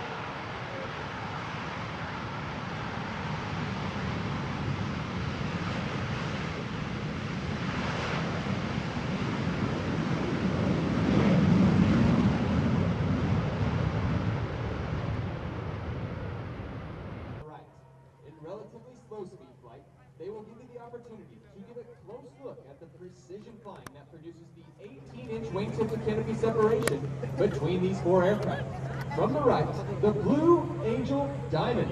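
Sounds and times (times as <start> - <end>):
jet engines roaring overhead: 0.0 - 17.4, 20.1 - 31.9.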